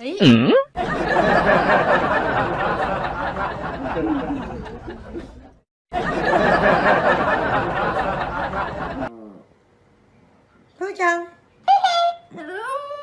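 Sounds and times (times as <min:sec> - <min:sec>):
people chattering: 0:00.8 - 0:09.1
people laughing: 0:00.8 - 0:09.1.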